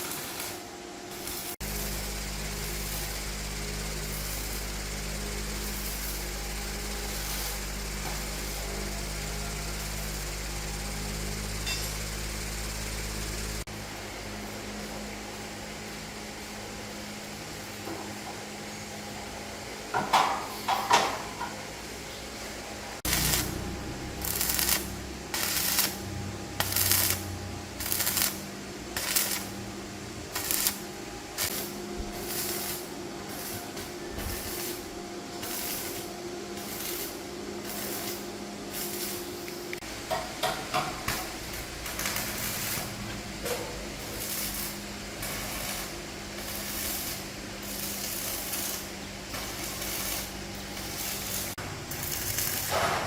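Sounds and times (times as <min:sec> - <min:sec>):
low machine hum: 0:00.0 - 0:53.0
hissing scraping metal strokes: 0:23.0 - 0:29.6, 0:30.3 - 0:39.8, 0:43.9 - 0:53.0.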